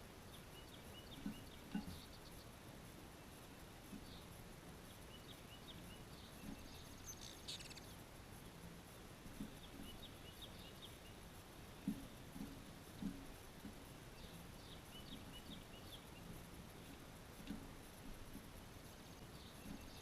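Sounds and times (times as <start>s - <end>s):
birds chirping: 0.2s - 20.0s
buzzy rattling bird call: 6.2s - 8.0s.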